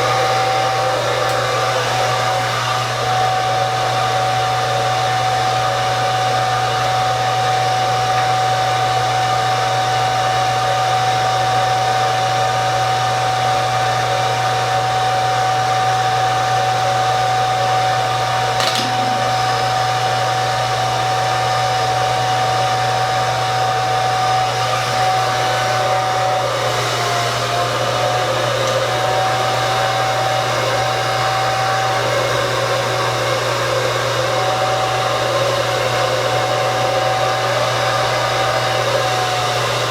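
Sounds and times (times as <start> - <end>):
hair dryer running: 0.0 - 39.9
brief click: 18.6 - 19.8.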